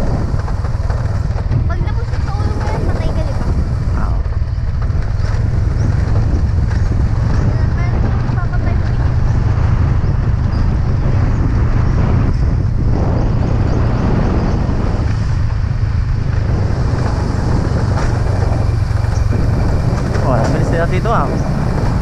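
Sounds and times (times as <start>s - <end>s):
motorcycle engine running: 0.0s - 22.0s
road rumble: 0.0s - 22.0s.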